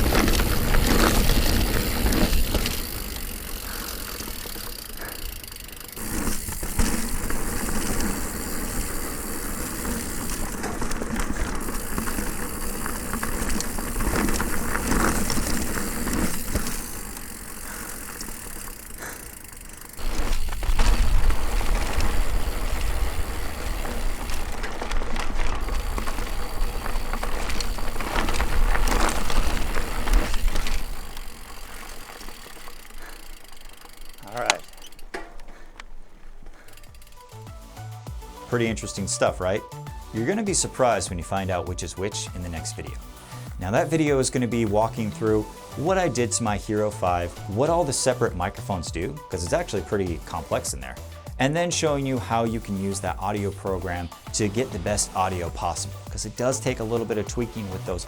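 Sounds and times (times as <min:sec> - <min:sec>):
chain and frame rattle: 0:00.0 - 0:37.4
bike tyre and trail noise: 0:00.0 - 0:58.0.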